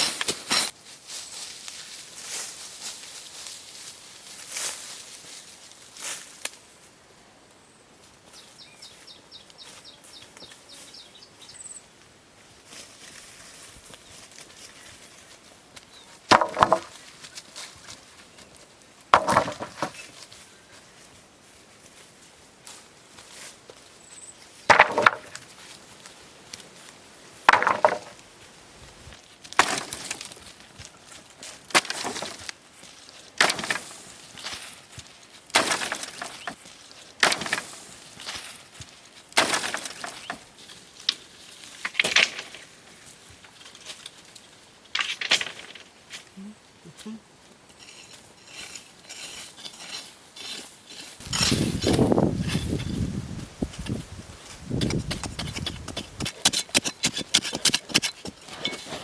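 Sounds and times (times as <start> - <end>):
hand tool chopping hits: 54.8 - 58.8.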